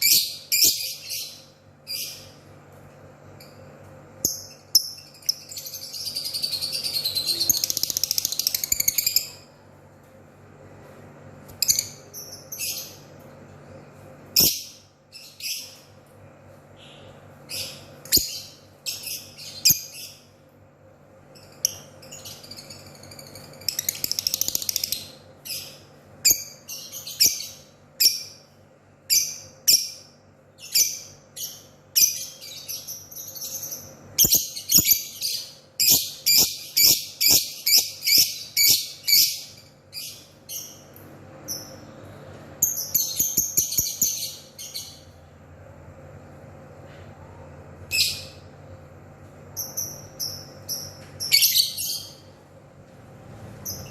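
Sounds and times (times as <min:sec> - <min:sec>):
lovebird chirping: 0:00.0 - 0:02.4, 0:04.2 - 0:09.5, 0:29.1 - 0:41.8, 0:49.6 - 0:52.2.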